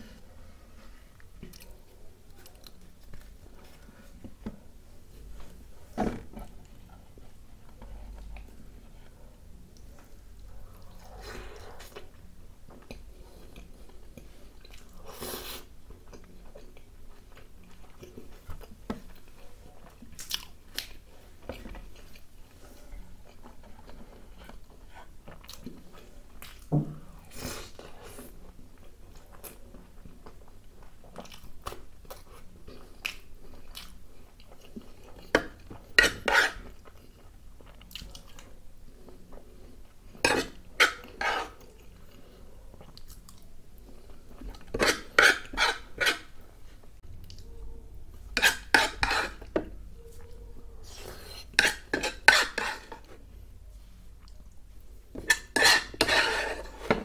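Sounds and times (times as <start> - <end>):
man chewing: 12.8 - 22.6, 27.3 - 46.4.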